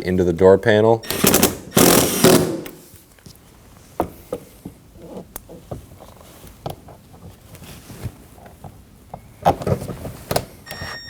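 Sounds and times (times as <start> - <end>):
power driver running: 1.0 - 2.9.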